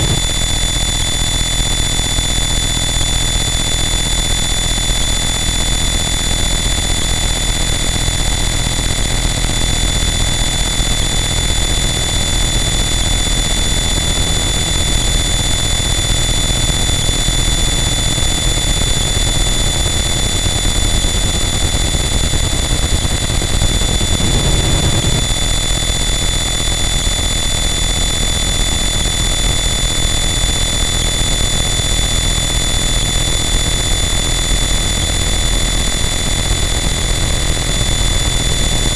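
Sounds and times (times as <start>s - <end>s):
heavy low rumble: 0.0s - 0.4s
loud distorted static: 0.0s - 0.4s, 23.3s - 25.3s
steady high-pitched tones: 0.0s - 0.4s.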